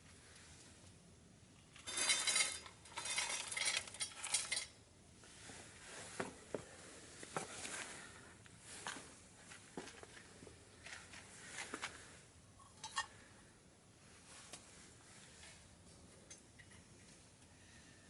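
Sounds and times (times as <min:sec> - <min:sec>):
metal camp gear clattering: 0:01.7 - 0:04.8.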